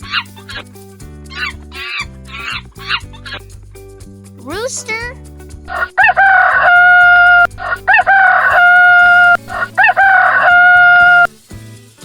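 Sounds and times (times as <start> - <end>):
quiet background music: 0.0 - 12.0
rooster crowing: 5.7 - 11.4.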